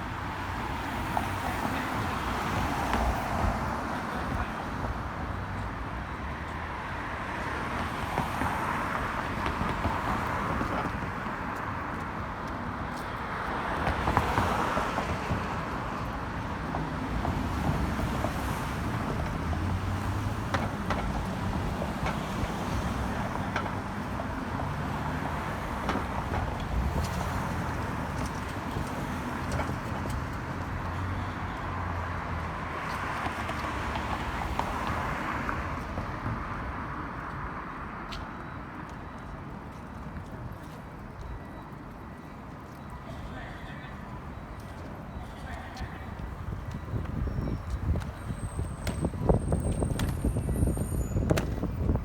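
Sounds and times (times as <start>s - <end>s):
cars passing: 0.0s - 52.0s
low traffic rumble: 43.0s - 52.0s
wind buffeting microphone: 46.1s - 52.0s.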